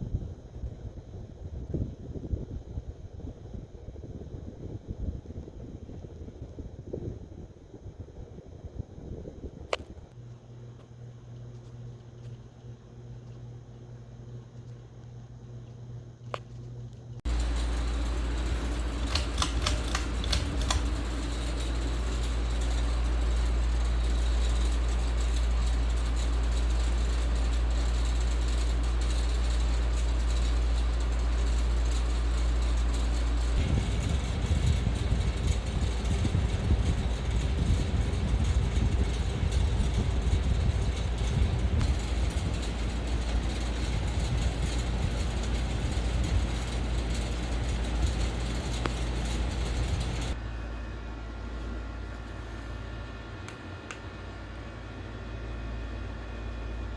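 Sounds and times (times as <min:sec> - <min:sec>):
ceiling fan air rumble: 0:00.0 - 0:56.9
sharp clicks: 0:17.3 - 0:22.3.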